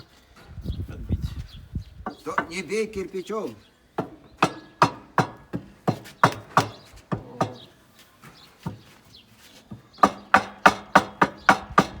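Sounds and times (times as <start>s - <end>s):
sharp knocks on masonry: 4.0s - 7.8s, 8.6s - 8.9s, 9.7s - 12.0s.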